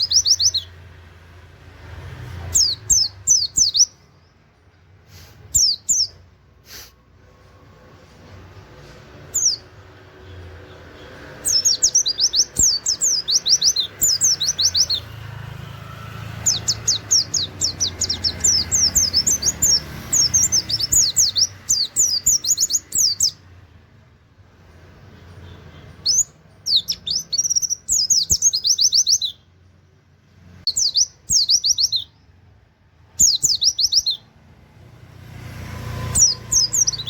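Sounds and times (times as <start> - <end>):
bird singing rapid high notes: 0.0 - 1.0, 2.4 - 4.4, 5.4 - 6.2, 9.2 - 23.6, 25.2 - 29.6, 30.6 - 32.4, 33.0 - 34.4, 35.9 - 37.0.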